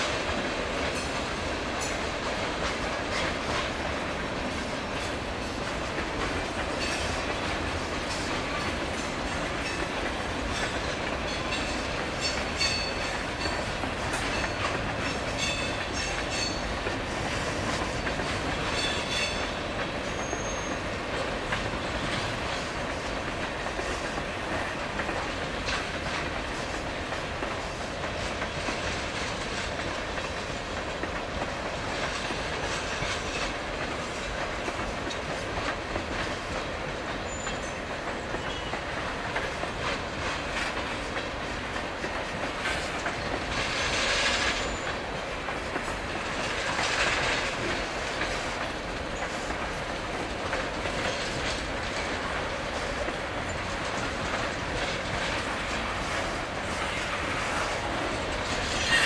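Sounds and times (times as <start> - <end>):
freight train wheels clattering: 0.0 - 59.0.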